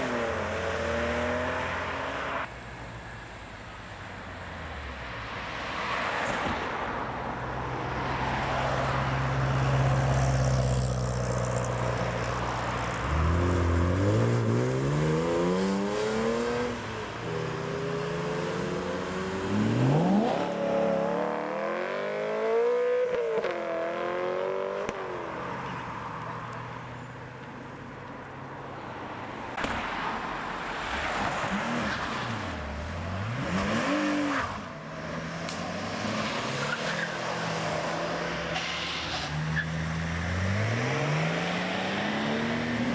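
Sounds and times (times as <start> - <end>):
cars accelerating engines revving: 0.0 - 2.5, 13.0 - 25.0, 31.5 - 42.9.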